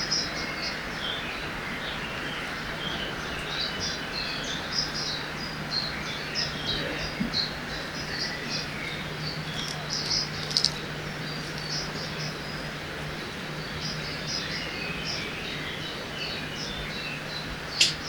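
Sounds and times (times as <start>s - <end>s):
small birds chirping: 0.0s - 18.0s
flowing water rushing: 4.8s - 16.5s
sharp clicks: 9.6s - 10.8s, 17.8s - 18.0s.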